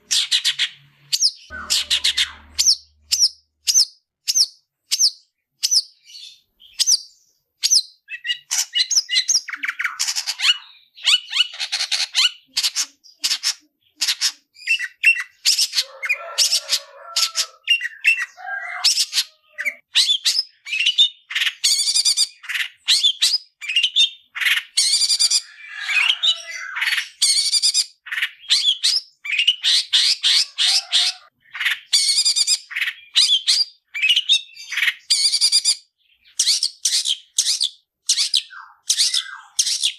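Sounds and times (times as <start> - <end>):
shrike singing harsh chattering song: 0.0 - 3.8.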